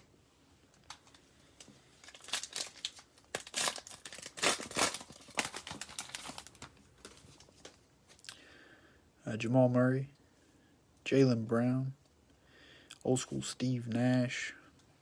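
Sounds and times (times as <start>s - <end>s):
foil wrapper tearing and crinkling: 2.0s - 7.4s.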